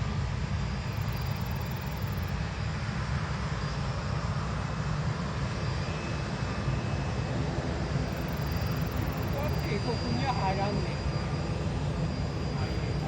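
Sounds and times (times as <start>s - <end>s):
jet engines rumbling: 0.0s - 13.0s
faint high whine: 0.6s - 2.6s, 8.0s - 13.0s.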